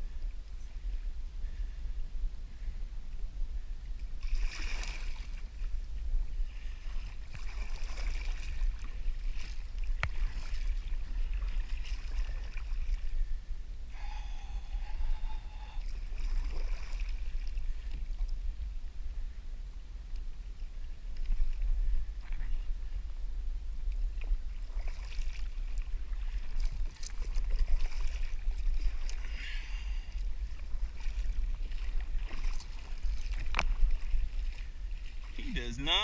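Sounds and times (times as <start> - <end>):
wind rumble on microphone: 0.0 - 36.0
water splashing against kayak: 3.8 - 36.0
short steady tone: 13.9 - 15.9.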